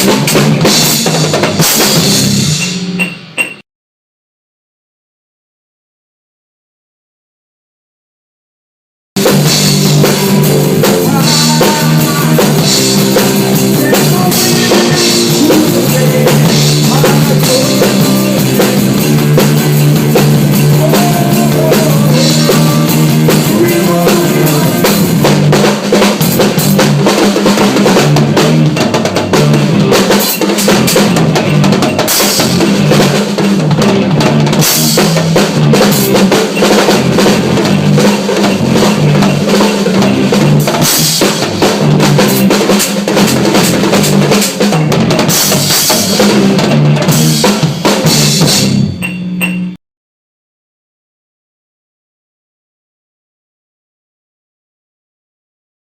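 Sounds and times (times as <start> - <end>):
fast drum solo: 0.0 - 3.1, 9.2 - 48.9.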